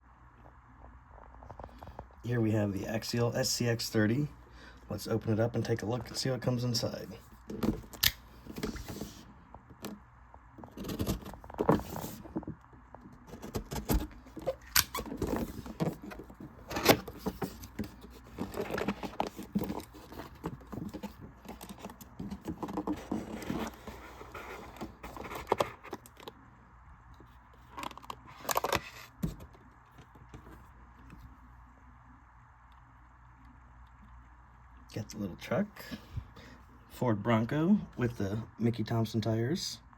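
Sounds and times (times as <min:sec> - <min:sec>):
clicks and knocks of handling: 0:10.6 - 0:26.4
packaging rustling: 0:13.2 - 0:26.4.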